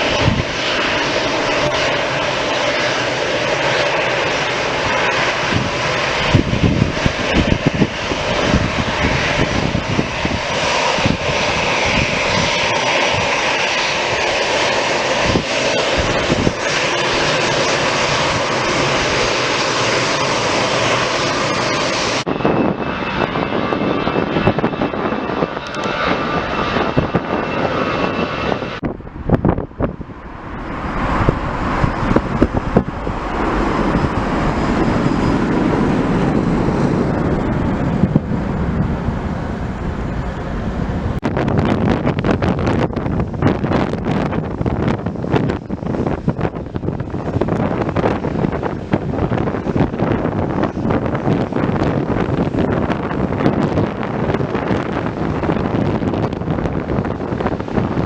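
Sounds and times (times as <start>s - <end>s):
aircraft engines with high whine: 0.0s - 58.0s
wind buffeting microphone: 0.0s - 58.0s.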